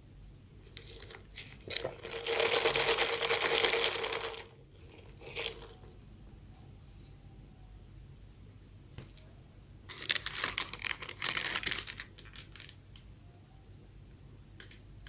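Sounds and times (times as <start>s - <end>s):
bread crackling: 9.9s - 12.8s.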